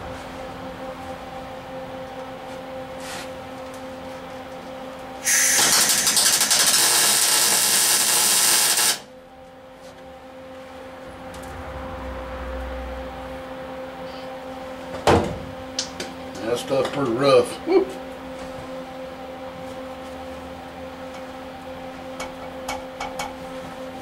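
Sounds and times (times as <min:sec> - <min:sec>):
low hum: 0:00.0 - 0:24.0
welder arc crackling: 0:05.2 - 0:09.1.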